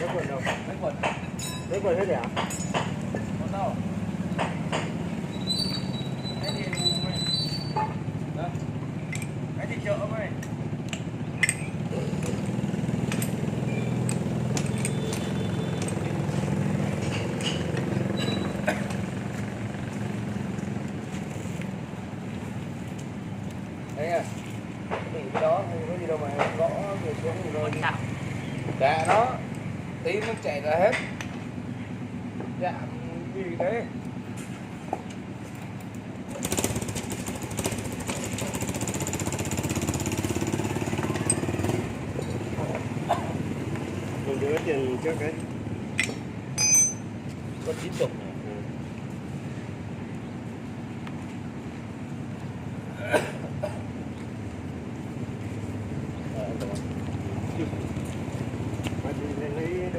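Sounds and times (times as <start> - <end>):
small engine idling: 3.0 - 25.0, 35.6 - 45.7.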